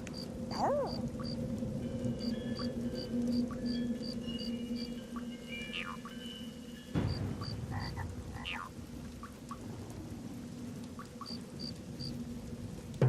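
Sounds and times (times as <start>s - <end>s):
frogs calling: 0.2s - 9.7s, 10.9s - 12.2s
low rumble: 6.7s - 13.0s.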